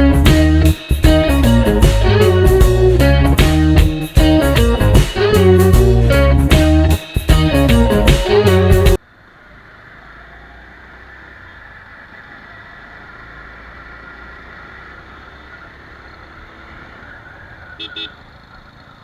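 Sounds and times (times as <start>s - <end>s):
guitar background music: 0.0s - 9.0s
low hum: 0.0s - 9.0s
motorcycle engine: 0.0s - 9.0s
road noise: 0.0s - 19.0s.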